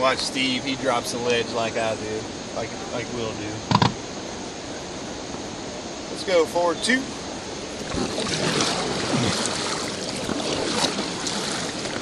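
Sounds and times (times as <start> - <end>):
whitewater rushing and splashing: 6.0 - 12.0.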